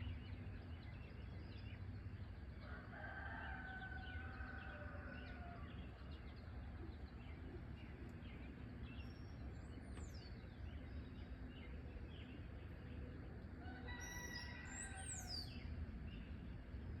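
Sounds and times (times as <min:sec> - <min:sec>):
rooster crowing: 0:02.6 - 0:05.7, 0:13.6 - 0:15.5
low background rumble: 0:03.6 - 0:17.0.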